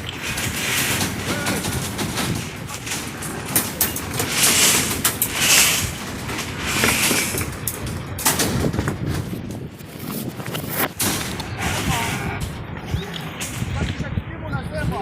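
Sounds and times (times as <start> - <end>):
steady rushing hiss: 0.0 - 8.1
sharp knocks and clatter: 0.0 - 11.9.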